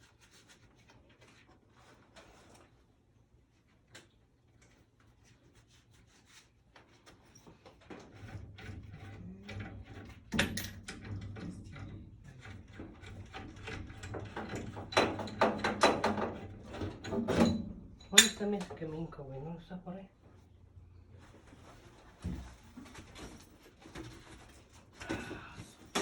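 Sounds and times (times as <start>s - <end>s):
tools and parts clattering: 9.8s - 18.8s, 22.4s - 26.0s.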